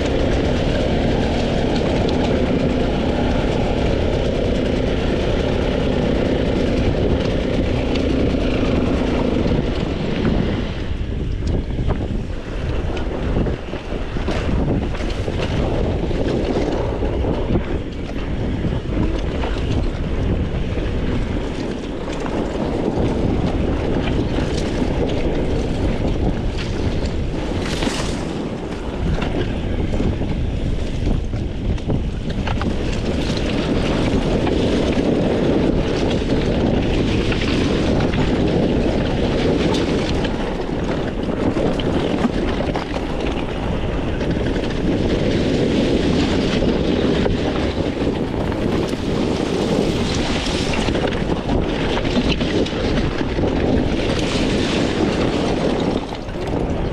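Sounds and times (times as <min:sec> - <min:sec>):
dirt bike engine running: 0:00.0 - 0:56.9
wind buffeting microphone: 0:00.0 - 0:56.9.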